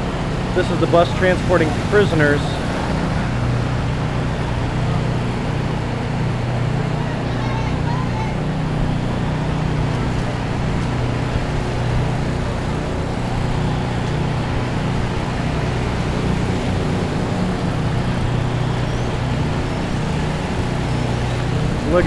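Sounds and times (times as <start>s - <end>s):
steady rushing noise: 0.0s - 22.0s
vehicle engine humming: 0.0s - 22.0s.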